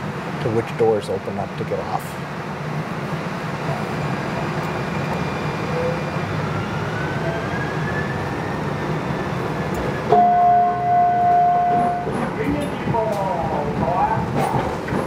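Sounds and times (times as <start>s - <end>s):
wheels rumbling on rails: 0.0s - 15.0s.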